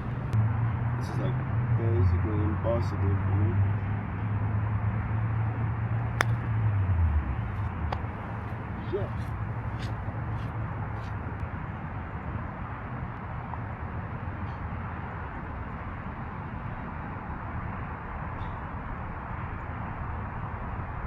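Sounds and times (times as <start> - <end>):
low outdoor rumble: 0.0 - 12.8.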